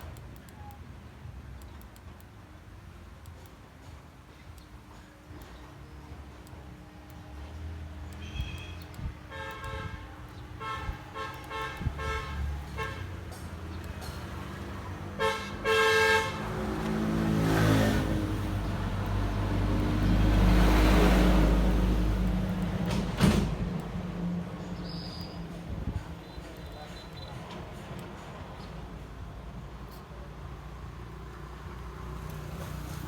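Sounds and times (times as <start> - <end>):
vehicle horn beeping: 8.1 - 13.3, 15.2 - 16.8
vehicle passing by: 12.3 - 24.6, 30.3 - 33.0.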